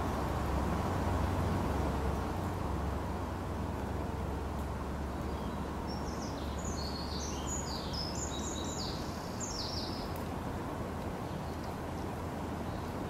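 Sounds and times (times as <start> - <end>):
low outdoor rumble: 0.0 - 13.0
songbird chirping: 3.8 - 13.0.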